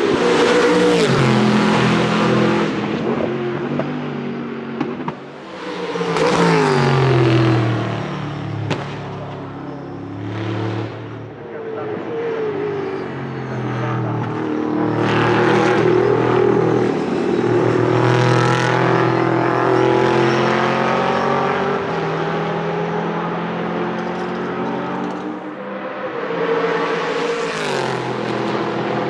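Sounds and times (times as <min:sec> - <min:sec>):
engine revving: 0:00.0 - 0:03.9, 0:04.8 - 0:29.0.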